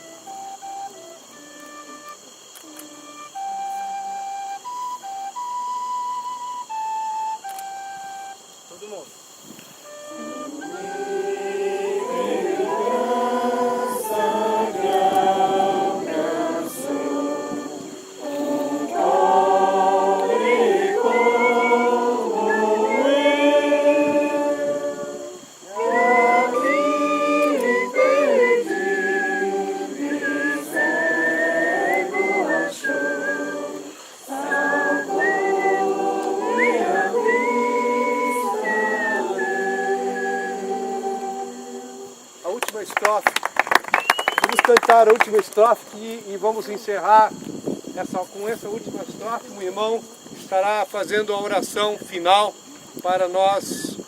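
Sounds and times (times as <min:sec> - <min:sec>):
group singing a hymn: 0:09.8 - 0:42.6.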